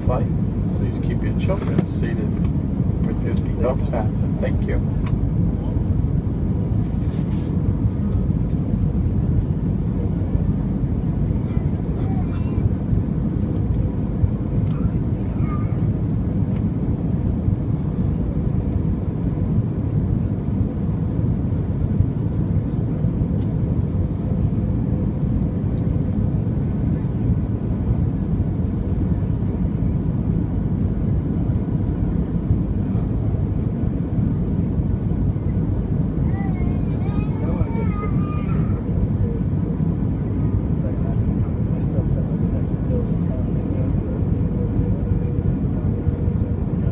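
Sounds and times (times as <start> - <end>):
airliner engines rumbling: 0.0 - 46.9.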